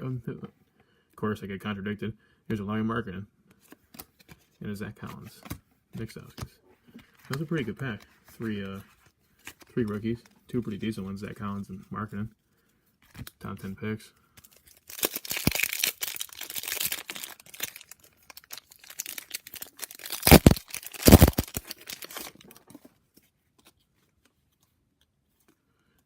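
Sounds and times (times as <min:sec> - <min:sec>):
loud wrapper rips: 0:14.4 - 0:22.6
foil wrapper crinkling: 0:14.4 - 0:22.7.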